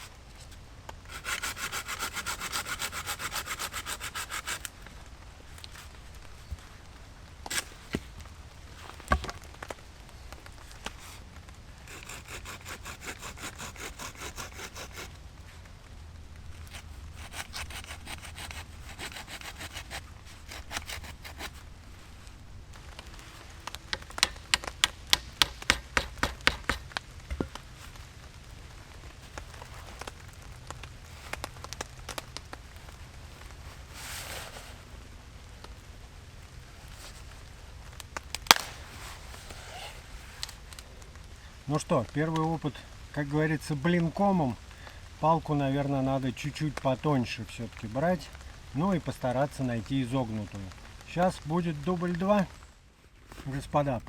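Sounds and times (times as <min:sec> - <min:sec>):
hand saw cutting wood: 0:01.1 - 0:04.7, 0:11.9 - 0:15.2, 0:16.7 - 0:21.6, 0:23.9 - 0:27.5.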